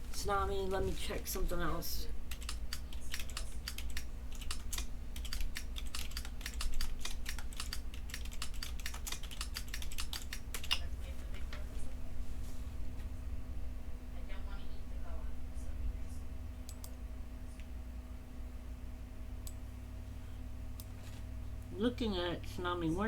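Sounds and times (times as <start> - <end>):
faint electrical hum: 0.0 - 23.0
typing on computer keyboard: 2.3 - 10.9.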